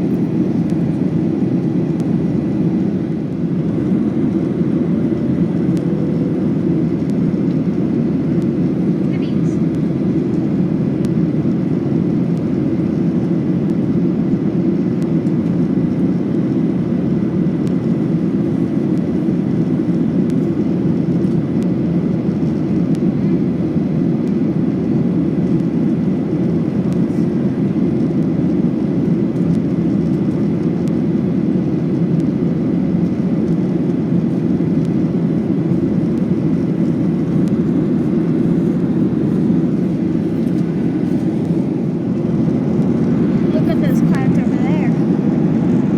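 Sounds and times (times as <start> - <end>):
airplane cabin engine roar: 0.0 - 45.9
faint steady whine: 0.0 - 45.9.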